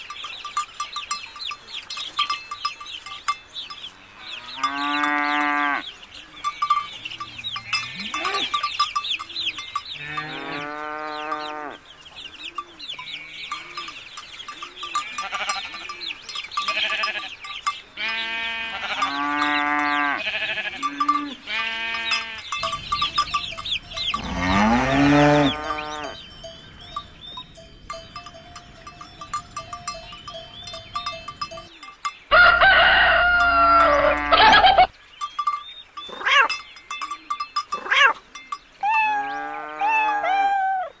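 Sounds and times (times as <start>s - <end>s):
goats bleating: 14.9s - 15.9s, 16.6s - 17.3s, 18.0s - 22.6s, 33.2s - 34.9s
rooster crowing loudly: 32.3s - 34.9s.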